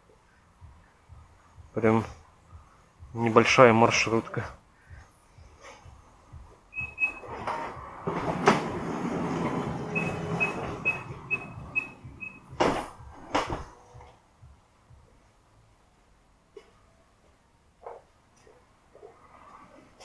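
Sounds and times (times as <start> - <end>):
high warning chime pips: 6.8 - 7.4, 9.9 - 12.6
door shutting thumps: 6.8 - 13.7
sliding door rolling: 6.8 - 13.7.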